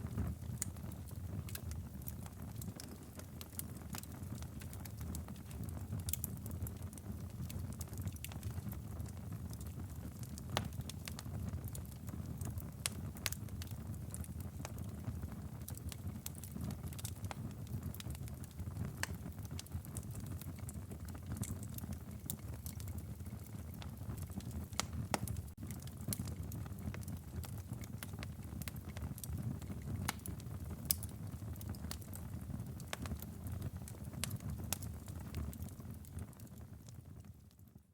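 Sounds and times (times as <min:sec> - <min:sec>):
fire flames rumbling: 0:00.0 - 0:37.3
burning logs crackling and popping: 0:00.0 - 0:37.8.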